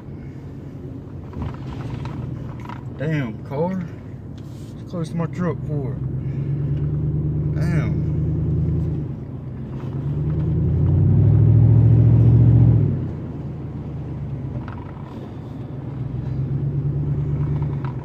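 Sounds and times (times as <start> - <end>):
pickup truck exhaust: 5.6 - 18.0.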